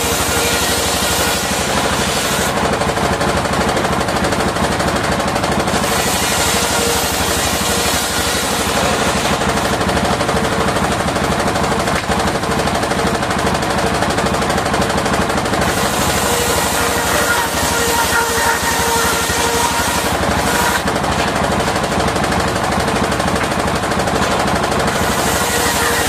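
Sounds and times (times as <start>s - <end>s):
circular saw blade chatter: 0.0s - 2.7s, 5.6s - 9.8s, 12.8s - 22.2s, 24.2s - 26.0s
steady whine: 15.3s - 22.1s.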